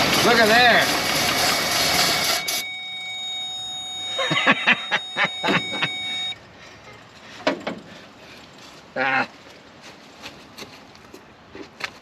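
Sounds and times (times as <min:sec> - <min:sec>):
steady high tone: 0:01.4 - 0:06.4.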